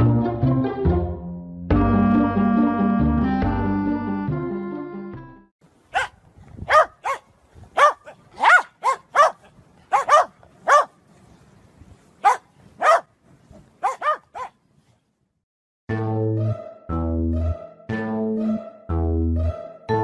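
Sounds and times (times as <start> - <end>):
dog barking: 5.9 - 11.0, 12.2 - 13.1, 13.8 - 14.6.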